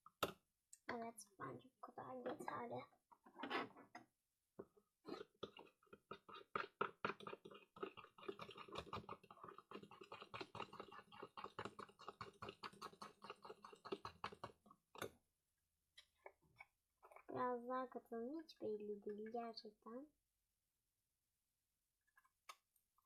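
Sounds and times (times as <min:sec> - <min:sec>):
spoon stirring sticky slime: 0:05.0 - 0:15.2.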